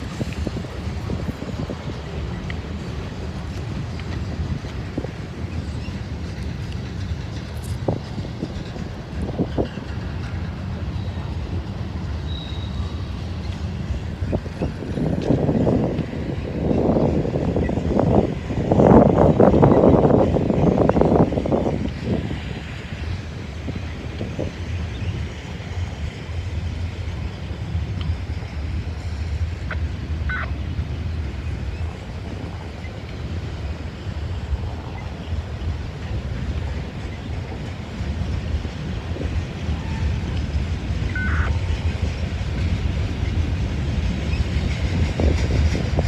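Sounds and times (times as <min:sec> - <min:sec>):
freight train rumbling on rails: 0:00.0 - 0:46.0
train cars clanking: 0:00.0 - 0:46.0
wind on microphone: 0:00.0 - 0:46.0
faint wheel squeal: 0:12.3 - 0:13.1.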